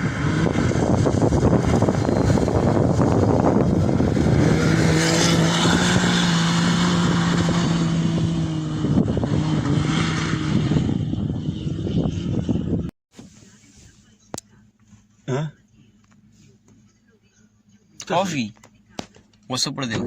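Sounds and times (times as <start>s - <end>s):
wind on microphone: 0.0s - 12.9s
rally car engine: 0.0s - 20.0s.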